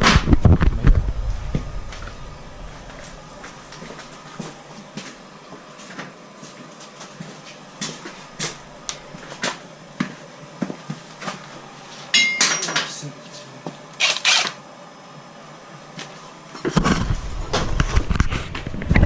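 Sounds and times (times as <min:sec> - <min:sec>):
metal tools clicking and knocking: 0:12.2 - 0:12.9
short metallic ring: 0:12.2 - 0:12.9.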